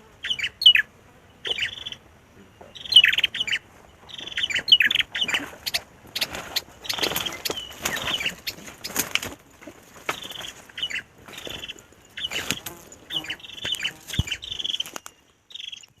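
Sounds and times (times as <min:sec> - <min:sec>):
bird giving sharp chirps: 0:00.2 - 0:02.0, 0:02.7 - 0:09.0
rustles and clicks: 0:03.6 - 0:15.3.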